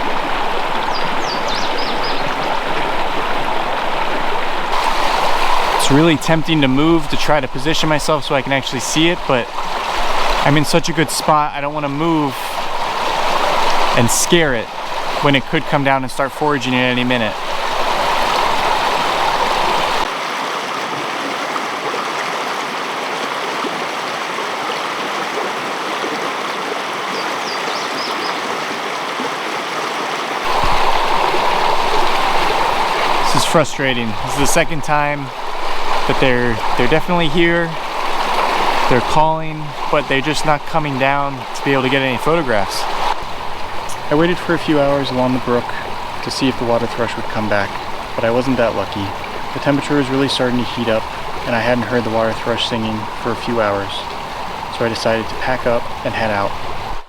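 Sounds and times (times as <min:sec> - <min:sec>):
faint songbird notes: 0:00.0 - 0:20.1, 0:27.1 - 0:28.5, 0:30.5 - 0:57.0
brook rushing over rocks: 0:00.0 - 0:57.0
faint high bird chirps: 0:00.8 - 0:02.4.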